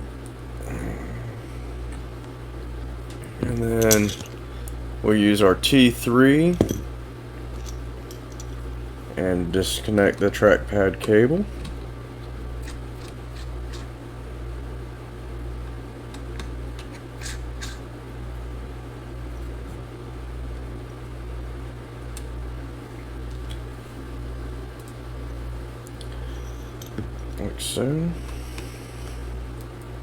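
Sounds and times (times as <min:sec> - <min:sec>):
low wavering hum: 0:00.0 - 0:20.6.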